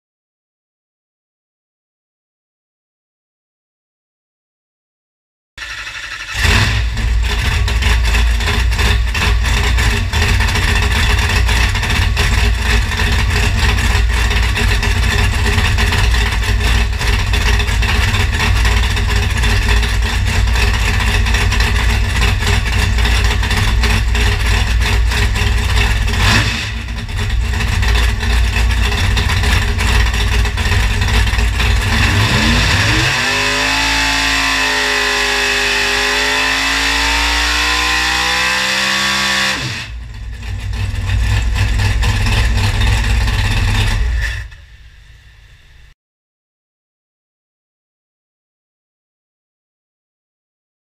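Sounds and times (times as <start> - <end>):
engine running on a dyno: 5.6 - 45.9.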